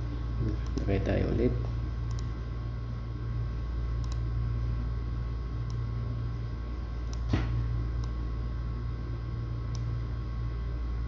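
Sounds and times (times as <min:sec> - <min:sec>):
low electrical hum: 0:00.0 - 0:11.0
sharp click: 0:02.1 - 0:02.3.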